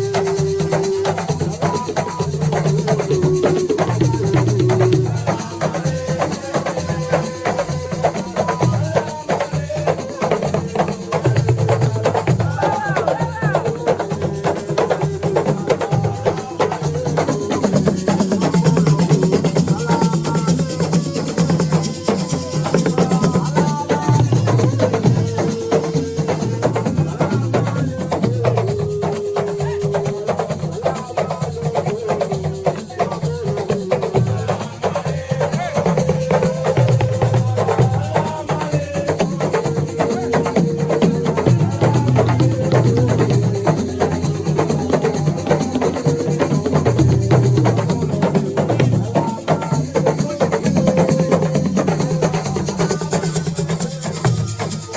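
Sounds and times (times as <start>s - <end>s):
drums: 0.0s - 54.9s
shakers: 0.0s - 54.9s.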